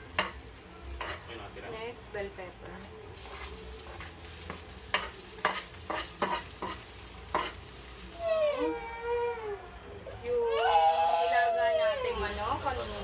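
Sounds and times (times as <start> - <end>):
food sizzling in hot oil: 0.0 - 8.7, 12.0 - 13.0.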